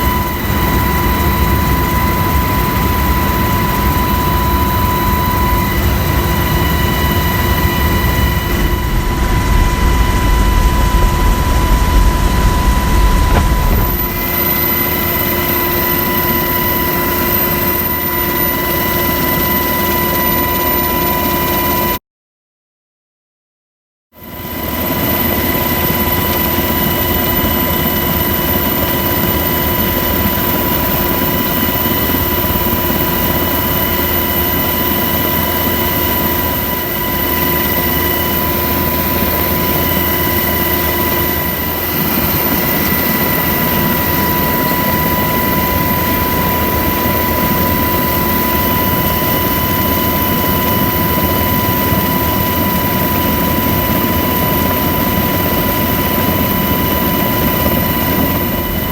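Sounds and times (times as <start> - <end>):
constant whining tones: 0.0 - 21.8
helicopter rotor and engine rush: 0.0 - 22.0, 24.2 - 58.9.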